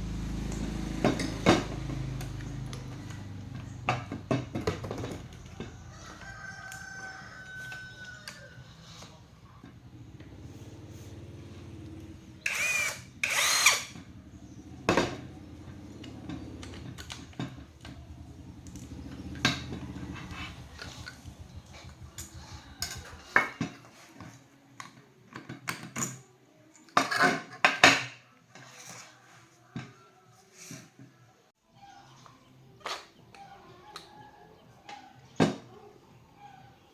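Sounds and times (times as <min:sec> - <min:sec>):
small electric motor running: 0:12.4 - 0:14.1
sharp clacks and scraping: 0:18.6 - 0:26.2.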